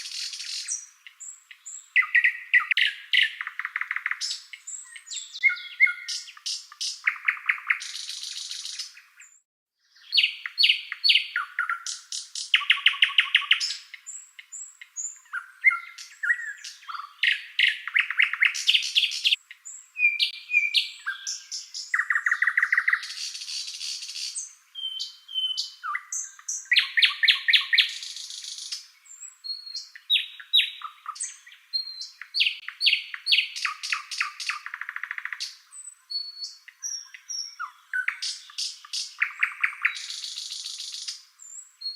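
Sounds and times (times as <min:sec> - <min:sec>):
songbird singing trills and chirps: 0:00.0 - 0:41.9.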